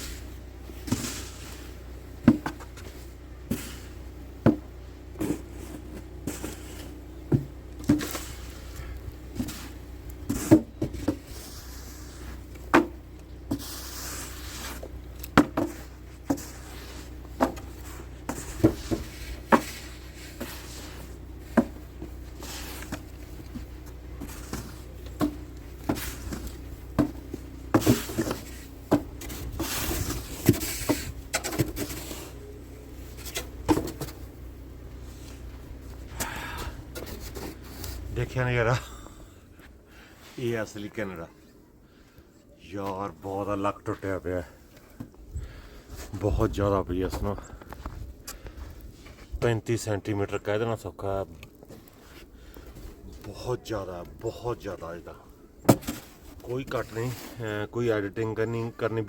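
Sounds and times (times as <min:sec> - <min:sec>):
snow shovel scraping pavement: 0:00.0 - 0:38.9, 0:54.5 - 0:58.5
shovel blade knocking pavement: 0:03.5 - 0:11.8, 0:12.7 - 0:32.1.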